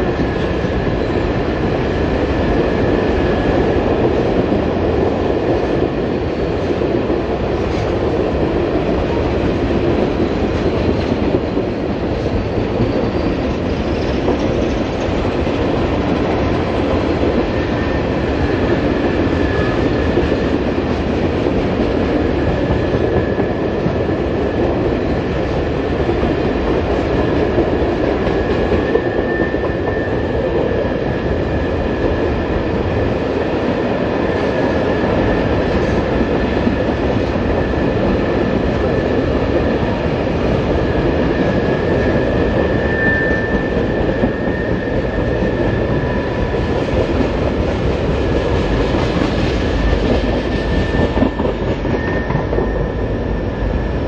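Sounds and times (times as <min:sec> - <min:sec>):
freight train wheels clattering: 0:00.0 - 0:54.0
faint high wheel squeal: 0:28.8 - 0:30.8, 0:41.2 - 0:46.5, 0:49.8 - 0:54.0.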